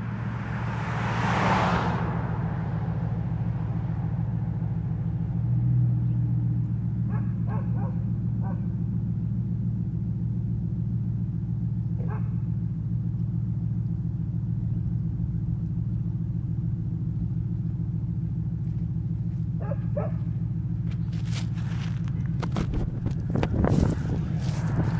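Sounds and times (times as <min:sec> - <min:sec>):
car engine idling: 0:00.0 - 0:24.9
dog barking: 0:07.1 - 0:08.7, 0:12.0 - 0:12.5, 0:19.6 - 0:20.3.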